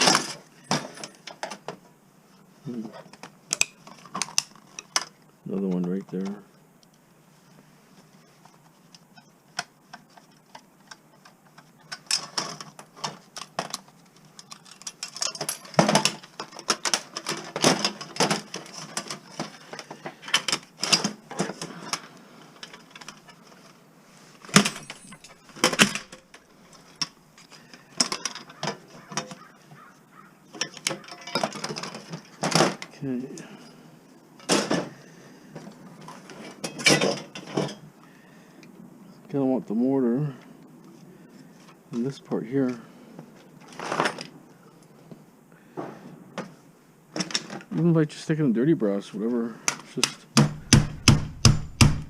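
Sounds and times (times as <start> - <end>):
scrap metal clinking: 24.5 - 27.0.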